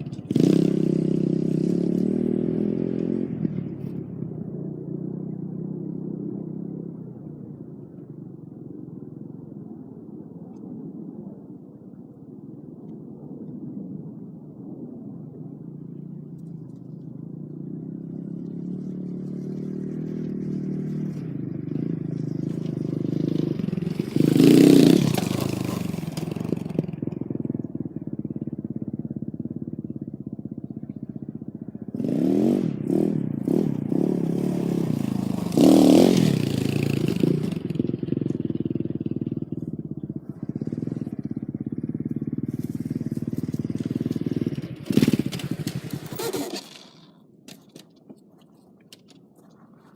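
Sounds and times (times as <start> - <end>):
dirt bike engine revving: 18.0 - 26.8, 32.0 - 38.3, 40.3 - 47.2.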